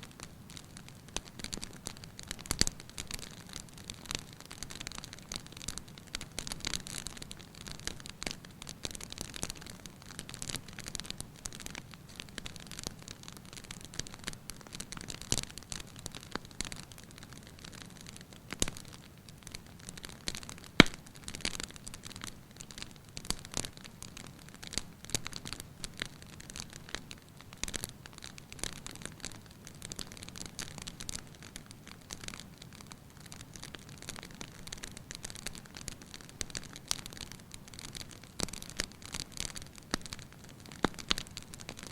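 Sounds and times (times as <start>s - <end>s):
wood fire crackling: 0.0s - 41.9s
sharp pop from fire: 20.8s - 21.0s.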